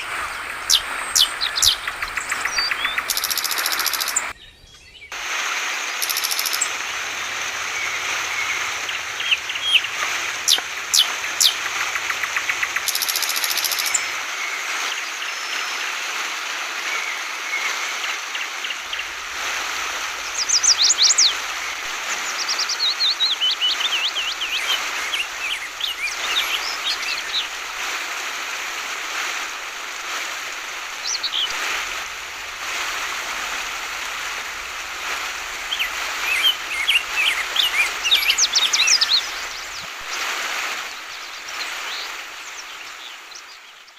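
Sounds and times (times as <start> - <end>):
flowing water rushing: 0.0 - 4.4, 5.1 - 43.9
bird chirping: 0.0 - 5.2, 6.0 - 14.2, 20.0 - 27.8, 35.6 - 40.2.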